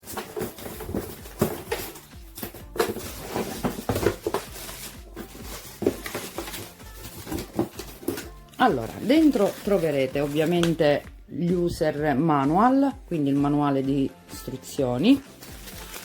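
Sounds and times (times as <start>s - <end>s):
packaging knocks and rustles: 0.0s - 10.8s, 15.3s - 16.0s.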